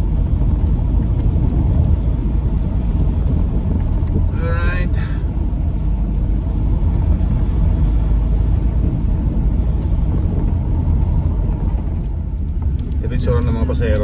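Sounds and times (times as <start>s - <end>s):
vehicle engine and tyres rumbling: 0.0s - 14.0s.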